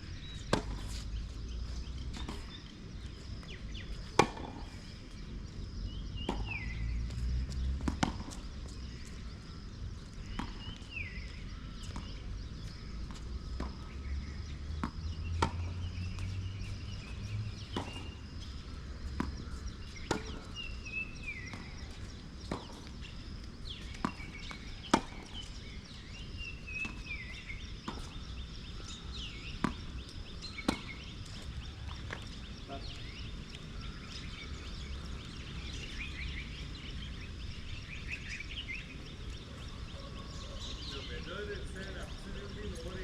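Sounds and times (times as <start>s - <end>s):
tennis balls struck and bouncing: 0.3s - 4.8s, 6.0s - 9.3s, 10.2s - 33.7s.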